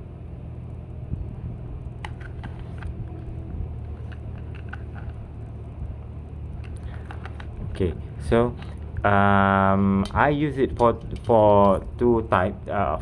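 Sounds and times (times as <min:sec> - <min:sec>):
steady low rumble: 0:00.0 - 0:13.0
plastic clicks and taps: 0:06.6 - 0:07.8.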